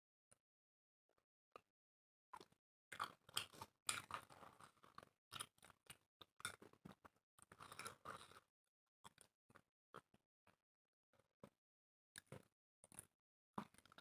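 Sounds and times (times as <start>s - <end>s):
chewing dry bread: 2.3s - 10.6s, 12.2s - 14.0s.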